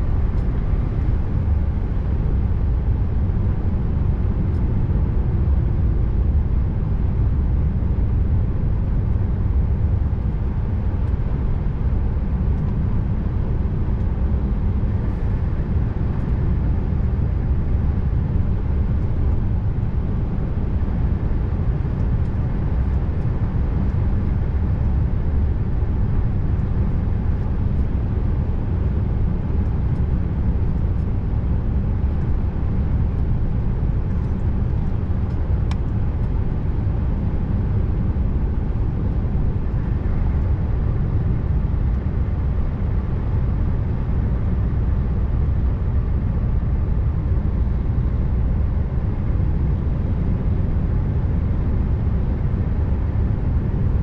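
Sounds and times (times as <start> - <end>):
road noise: 0.0 - 3.0.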